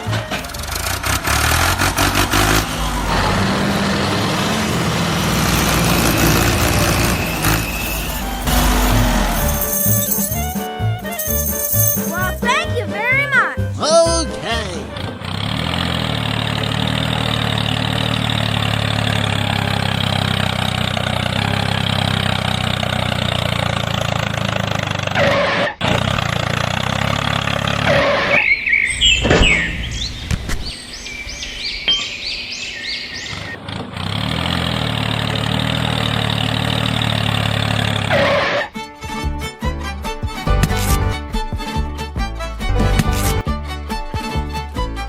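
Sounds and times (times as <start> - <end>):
tractor engine running: 0.0 - 45.0
quick high rising chirps: 6.3 - 12.1, 28.2 - 33.6.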